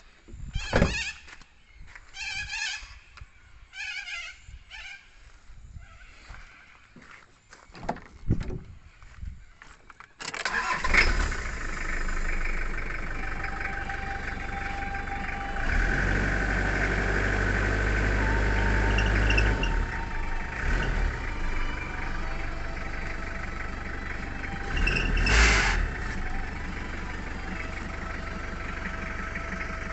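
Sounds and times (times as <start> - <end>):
car engine starting and running: 10.2 - 29.9.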